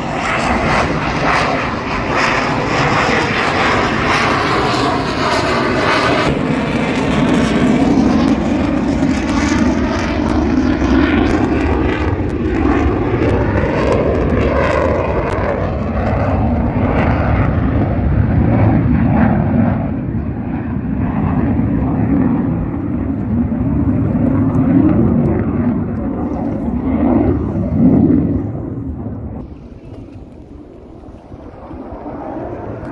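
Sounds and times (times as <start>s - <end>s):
aircraft engines roaring past: 0.0s - 32.9s.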